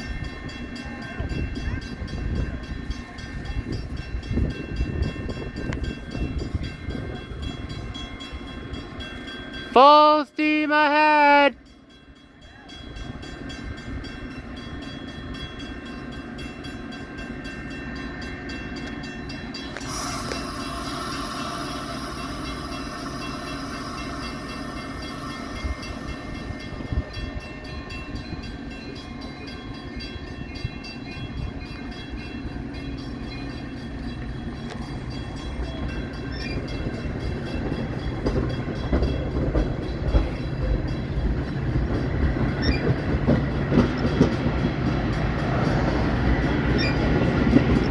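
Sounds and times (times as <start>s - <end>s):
train rumbling: 0.0s - 10.6s, 11.2s - 47.9s
held tones: 19.6s - 29.5s.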